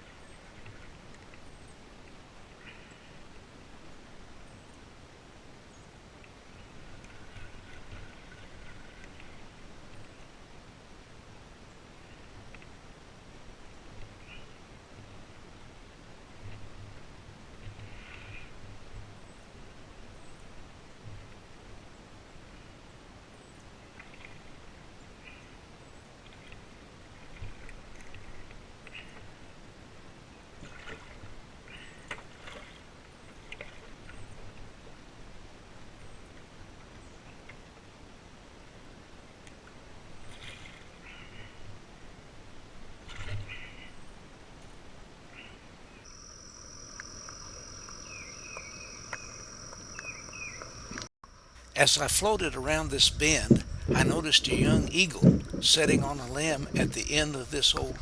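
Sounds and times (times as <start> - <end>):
falling bird chirps: 46.1 - 51.7
high-pitched insect drone: 46.1 - 58.0
kayak paddle splashing water: 46.2 - 58.0.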